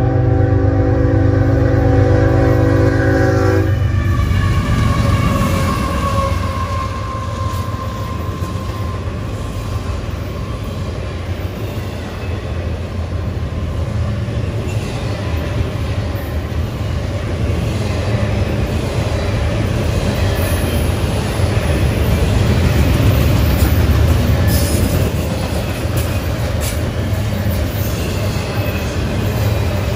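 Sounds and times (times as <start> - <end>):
train horn blast: 0.0 - 7.8
freight train rumbling on rails: 0.0 - 29.9.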